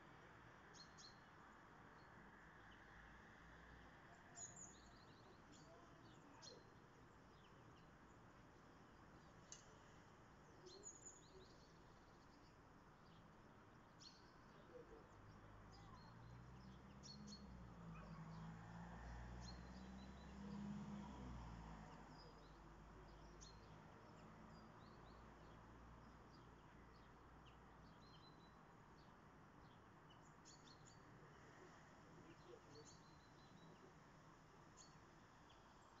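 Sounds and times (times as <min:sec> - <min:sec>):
songbirds chirping: 0:00.0 - 0:36.0.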